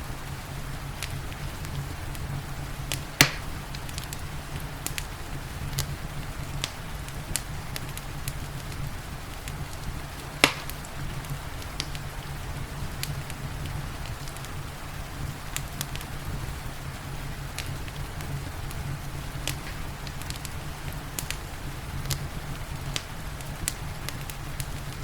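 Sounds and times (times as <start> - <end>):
rain hiss: 0.0 - 25.0
wood fire crackling: 0.0 - 25.0
sharp fire pops: 0.9 - 12.1, 17.4 - 25.0.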